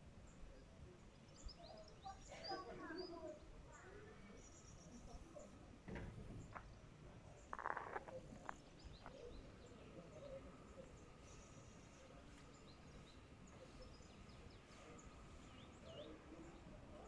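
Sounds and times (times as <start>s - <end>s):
faint bird chirps: 0.2s - 17.0s.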